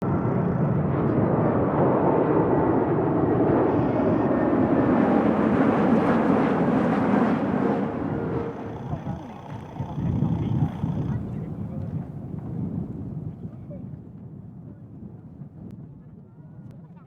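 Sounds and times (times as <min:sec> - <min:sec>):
jet engines roaring overhead: 0:00.0 - 0:13.1.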